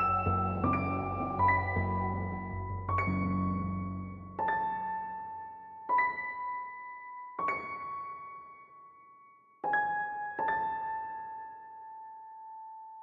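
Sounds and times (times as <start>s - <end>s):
slow piano notes: 0.0s - 9.0s.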